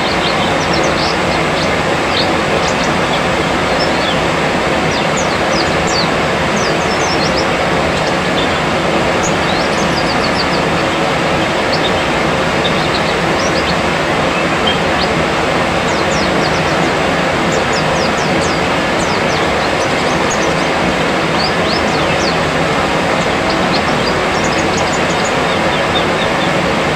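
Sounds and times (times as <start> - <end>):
high bird chirps: 0.0 - 26.5
loud steady rushing noise: 0.0 - 26.9.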